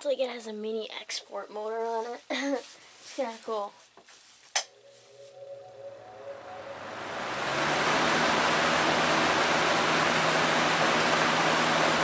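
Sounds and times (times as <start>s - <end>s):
low motor hum: 5.6s - 12.0s
fan air rushing: 6.1s - 12.0s.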